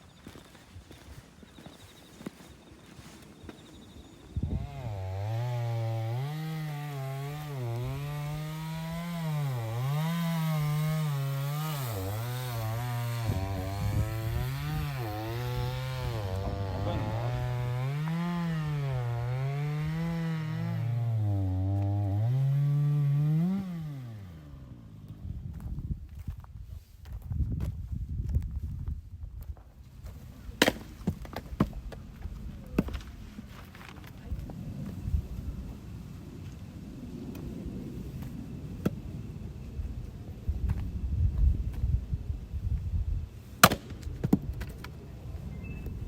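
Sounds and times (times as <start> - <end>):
chainsaw cutting wood: 4.4 - 25.2, 43.6 - 44.4.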